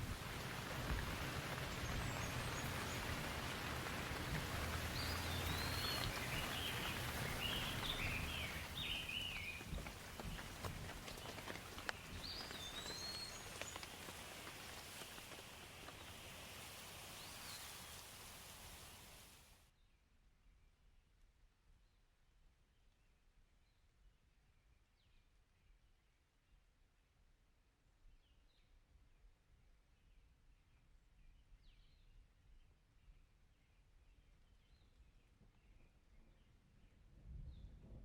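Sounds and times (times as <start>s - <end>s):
distant thunder rumble: 0.0s - 19.1s
steady rain in forest: 0.0s - 19.7s.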